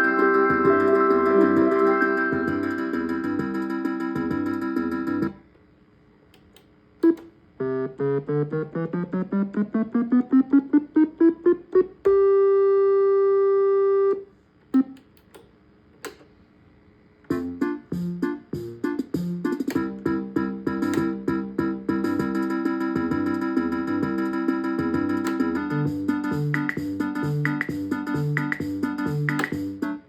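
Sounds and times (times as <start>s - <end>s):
electronic chord pattern: 0.0s - 5.3s, 7.1s - 12.4s, 17.3s - 30.0s.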